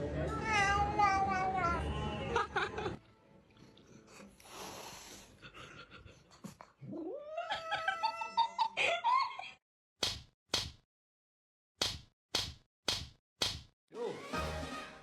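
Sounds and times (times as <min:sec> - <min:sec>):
cat yowling: 0:00.3 - 0:01.8, 0:07.0 - 0:08.6.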